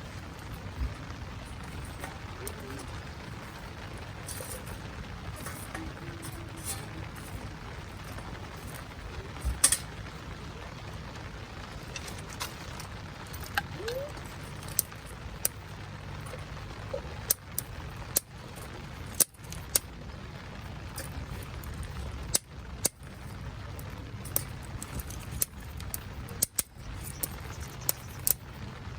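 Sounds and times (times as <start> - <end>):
wood fire crackling and popping: 0.0 - 28.9.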